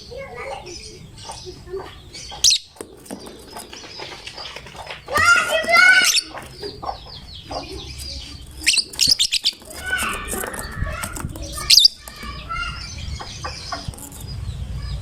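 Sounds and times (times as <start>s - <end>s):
lovebird chirps and trills: 0.0s - 15.0s.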